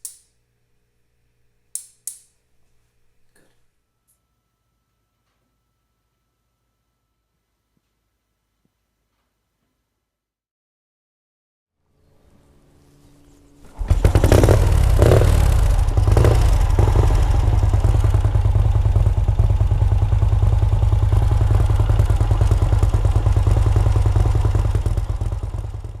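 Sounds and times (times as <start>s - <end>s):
motorcycle engine revving and idling: 13.7s - 26.0s.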